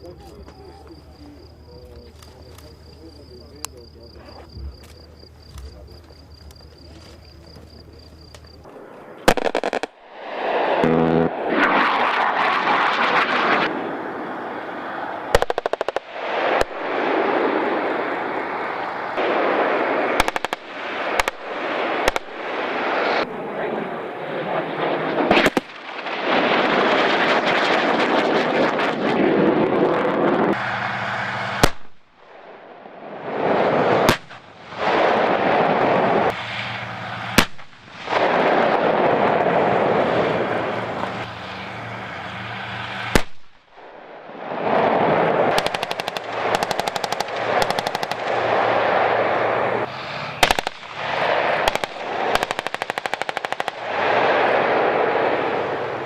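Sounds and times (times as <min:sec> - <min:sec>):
single sharp gunshots: 0:09.2 - 0:13.7, 0:15.3 - 0:17.5, 0:19.2 - 0:23.2, 0:25.2 - 0:28.4, 0:31.6 - 0:32.5, 0:33.4 - 0:36.0, 0:37.4 - 0:39.5, 0:43.1 - 0:43.7, 0:50.4 - 0:54.8
rapid automatic gunfire: 0:09.3 - 0:10.0, 0:45.5 - 0:48.5, 0:50.4 - 0:53.8
steady low hum: 0:30.3 - 0:56.0.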